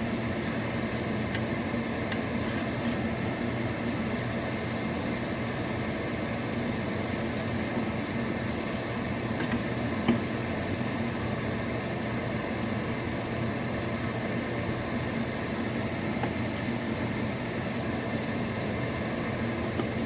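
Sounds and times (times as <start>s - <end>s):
microwave oven humming: 0.0s - 20.0s
microwave click: 1.2s - 2.9s.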